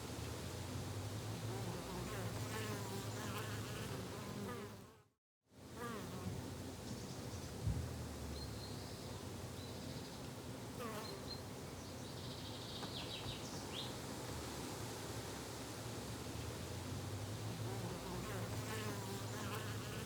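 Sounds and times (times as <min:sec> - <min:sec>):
flying insects buzzing: 0:01.5 - 0:05.0, 0:17.6 - 0:20.0.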